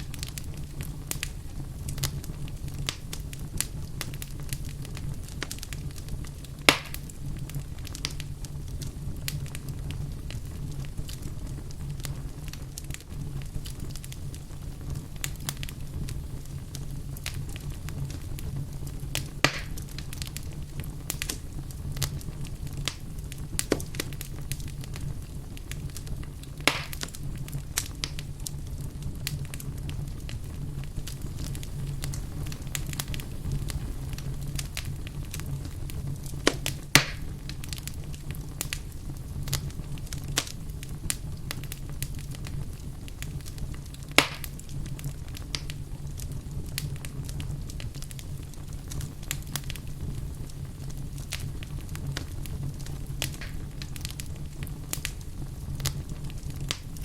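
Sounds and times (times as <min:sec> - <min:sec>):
fire crackling: 0:00.0 - 0:57.0
low rumble of fire: 0:00.0 - 0:57.0
logs popping: 0:06.6 - 0:07.1, 0:19.1 - 0:20.3, 0:26.5 - 0:27.2, 0:36.3 - 0:37.9, 0:44.0 - 0:44.7, 0:53.2 - 0:54.2.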